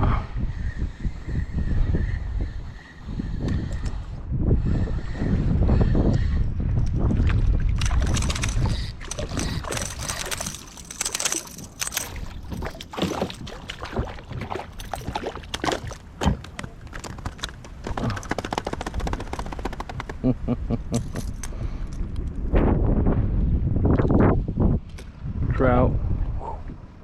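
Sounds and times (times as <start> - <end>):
wind buffeting microphone: 0.0 - 27.0
water slapping against kayak hull: 12.1 - 17.2.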